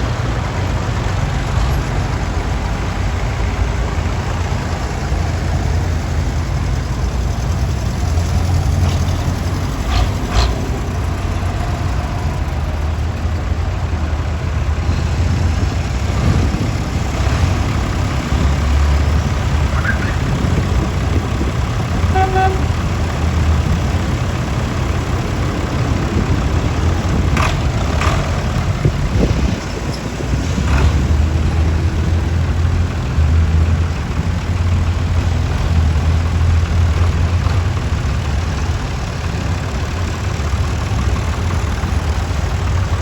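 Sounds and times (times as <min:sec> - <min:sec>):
tractor engines running: 0:00.0 - 0:43.0
short horn toot: 0:22.1 - 0:22.8.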